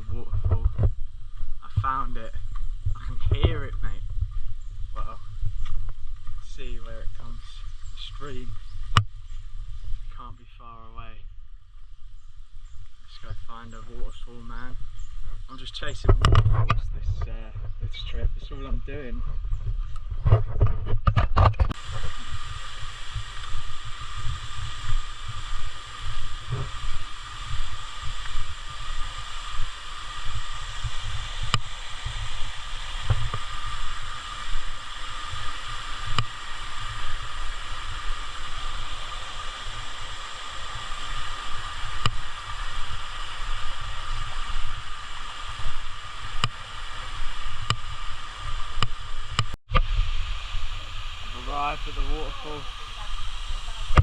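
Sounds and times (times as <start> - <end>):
wind buffeting microphone: 0.0 - 10.3, 11.9 - 54.0
stream and waterfall rushing: 1.6 - 2.7, 4.8 - 9.8, 21.8 - 54.0.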